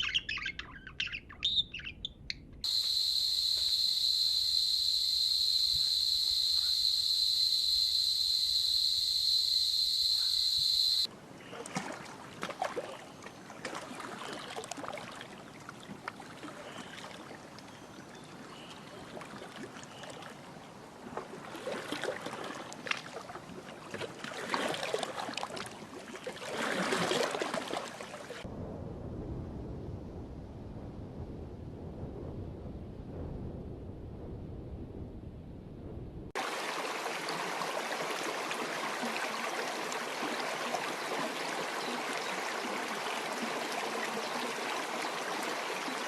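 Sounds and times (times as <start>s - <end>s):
insect drone: 2.6s - 11.1s
water splashing and trickling: 10.7s - 28.5s, 36.4s - 46.0s.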